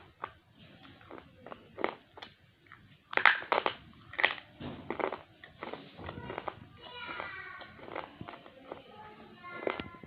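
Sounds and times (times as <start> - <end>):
pencil crunched between teeth: 3.1 - 6.6, 7.6 - 8.8.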